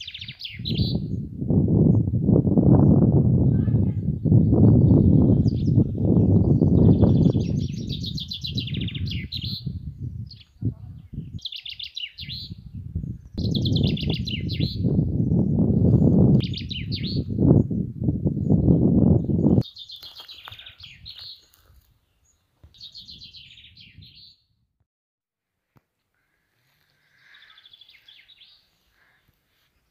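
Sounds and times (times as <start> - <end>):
songbird trilling: 11.1 - 12.6, 13.4 - 15.0, 16.4 - 17.3.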